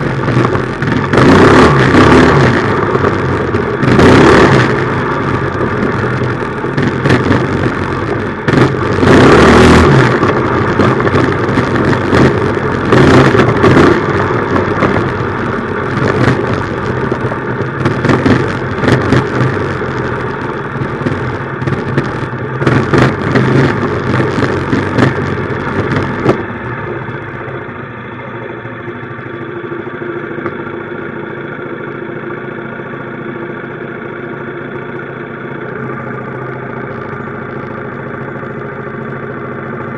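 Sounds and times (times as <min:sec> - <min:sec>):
loud rushing noise: 0:00.0 - 0:29.9
small engine running: 0:00.0 - 0:39.9.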